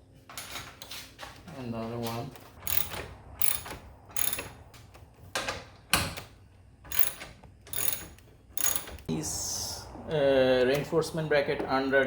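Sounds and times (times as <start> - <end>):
screwdriver rasping: 6.9 - 9.0.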